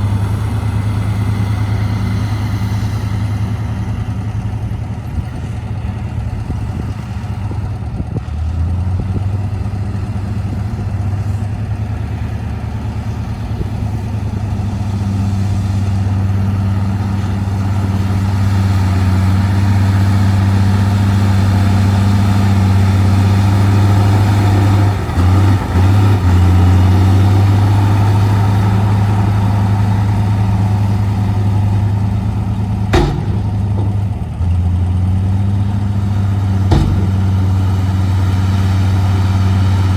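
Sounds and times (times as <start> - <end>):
diesel truck engine running: 0.0 - 39.9
sharp knock: 32.9 - 34.2, 36.7 - 37.6.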